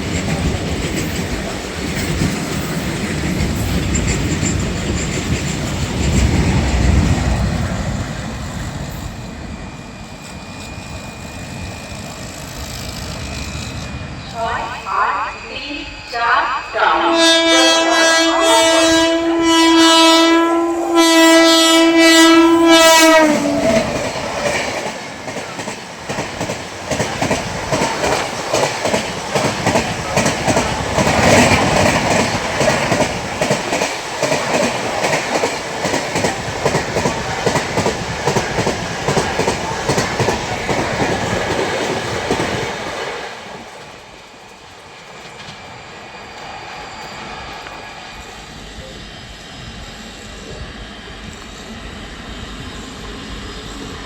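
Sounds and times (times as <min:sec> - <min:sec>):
train wheels clattering over rails: 0:00.0 - 0:09.6, 0:21.5 - 0:47.8
train horn blasts: 0:14.4 - 0:24.0.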